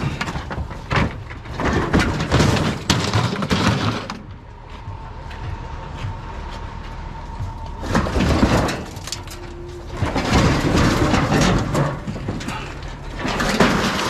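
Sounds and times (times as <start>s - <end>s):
scrap knocking and clattering: 0.0s - 4.4s, 7.8s - 14.0s.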